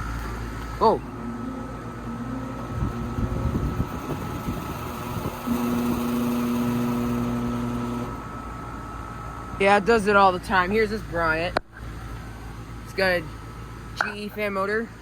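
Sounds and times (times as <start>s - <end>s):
air conditioner unit humming: 0.0s - 15.0s
condenser fan motor hum: 0.0s - 15.0s.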